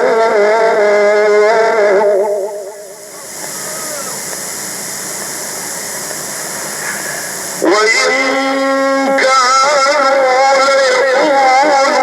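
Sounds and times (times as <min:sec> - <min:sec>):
man chanting recitation: 0:00.0 - 0:04.2, 0:07.6 - 0:12.0
steady hiss: 0:00.0 - 0:12.0.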